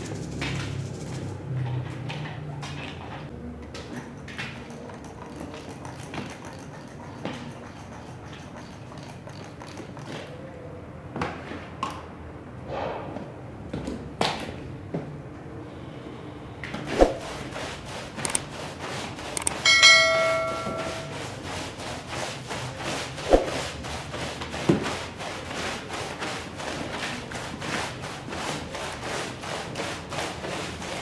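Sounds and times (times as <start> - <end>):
rug scrubbing strokes: 17.0 - 31.0
metal tool clanging: 19.4 - 21.3.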